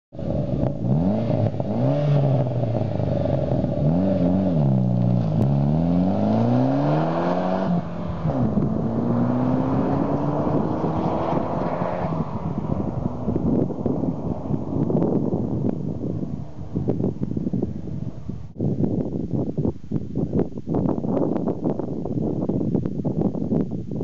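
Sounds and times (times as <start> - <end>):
car engine revving and accelerating: 0.2 - 17.1.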